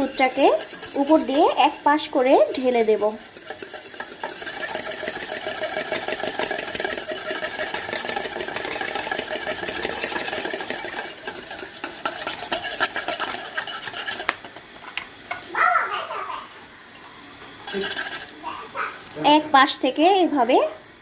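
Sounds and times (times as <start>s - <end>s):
metal spoon clinking in cup: 17.6s - 18.3s.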